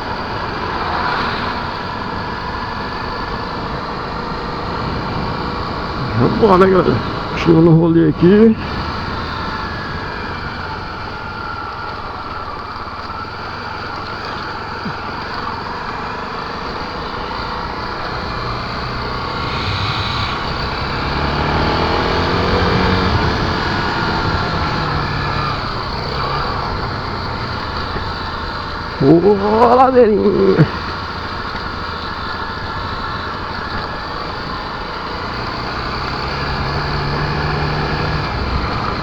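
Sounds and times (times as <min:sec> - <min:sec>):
motorcycle engine running: 0:00.0 - 0:39.0
rush of noise: 0:14.3 - 0:31.4.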